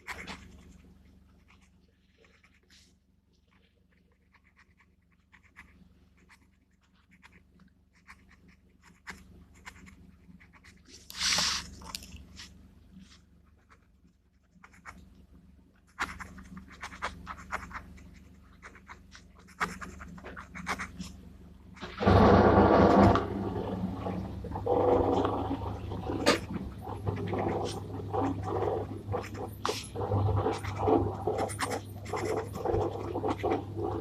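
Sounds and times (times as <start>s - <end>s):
pen scratching on paper: 0.0s - 2.8s, 4.1s - 12.4s, 13.4s - 15.0s, 15.9s - 21.2s, 24.7s - 34.0s
paper rustle: 10.8s - 13.3s.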